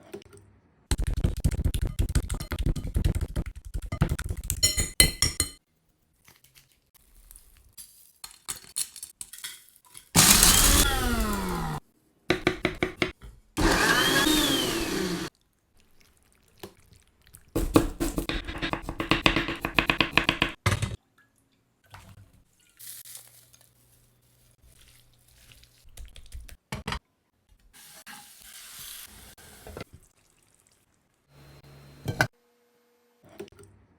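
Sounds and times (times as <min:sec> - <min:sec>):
fast repeated knocks and clicks: 0:00.9 - 0:05.0, 0:17.6 - 0:20.6
stirring sounds: 0:00.9 - 0:08.4, 0:09.9 - 0:11.8, 0:12.4 - 0:20.6, 0:21.2 - 0:26.7
electric blender grinding: 0:10.2 - 0:11.8, 0:13.6 - 0:15.3.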